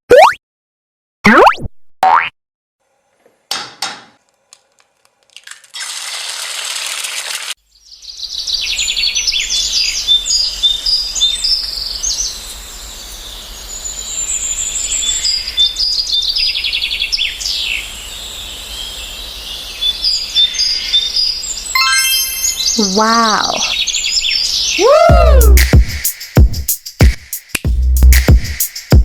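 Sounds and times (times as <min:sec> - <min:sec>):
birds chirping and twittering: 0:07.7 - 0:24.8.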